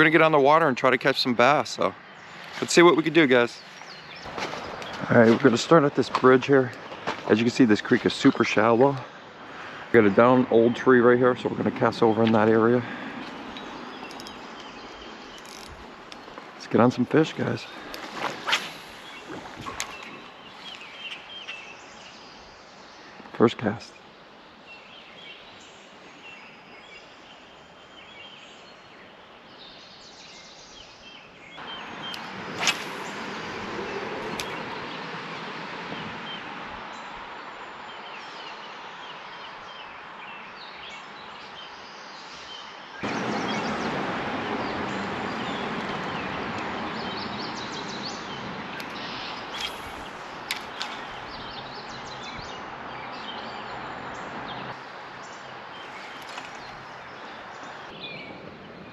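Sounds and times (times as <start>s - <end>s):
small birds chirping: 0.0s - 58.9s
creek water running: 0.1s - 22.4s, 31.6s - 35.8s, 43.0s - 58.0s.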